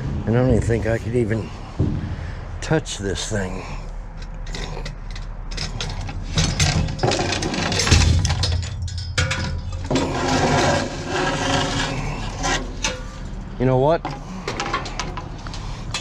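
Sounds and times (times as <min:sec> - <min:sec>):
steady low hum: 0:00.0 - 0:16.0
metal hook knocking scrap: 0:04.1 - 0:13.4.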